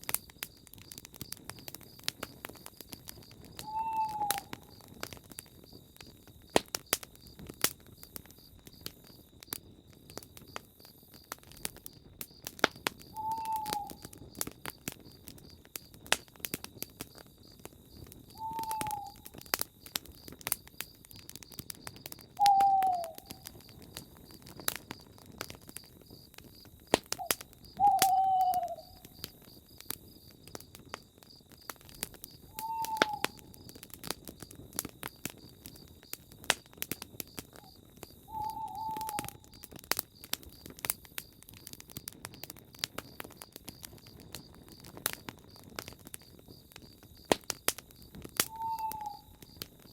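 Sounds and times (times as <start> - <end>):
campfire crackling and popping: 0.0 - 49.9
owl hooting: 3.6 - 4.7, 13.2 - 14.0, 18.4 - 19.2, 22.4 - 23.4, 27.2 - 29.0, 32.5 - 33.5, 38.3 - 39.5, 48.5 - 49.4.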